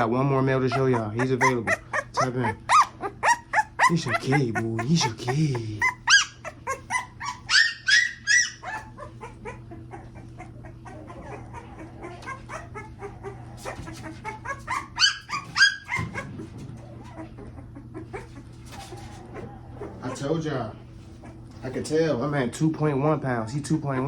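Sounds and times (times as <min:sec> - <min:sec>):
puppy crying in high whines: 0:00.7 - 0:16.3.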